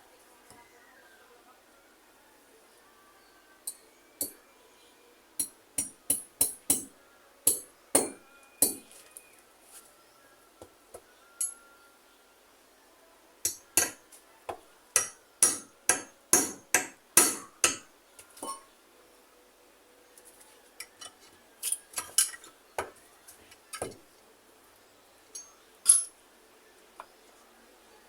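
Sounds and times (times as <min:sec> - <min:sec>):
hammer strikes: 0:05.4 - 0:06.9, 0:07.5 - 0:08.9, 0:13.5 - 0:14.0, 0:15.0 - 0:18.6.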